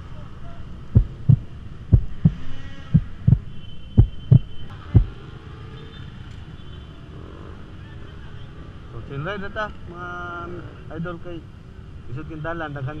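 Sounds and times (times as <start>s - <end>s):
heartbeat thumps: 0.9s - 5.1s.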